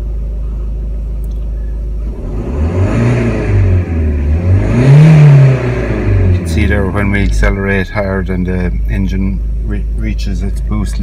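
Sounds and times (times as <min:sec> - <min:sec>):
turbocharged car engine accelerating: 0:02.0 - 0:09.0.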